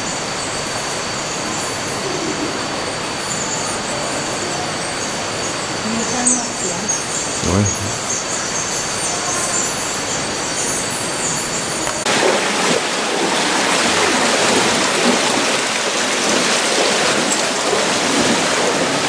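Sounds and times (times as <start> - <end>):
rushing water: 11.9 - 19.0.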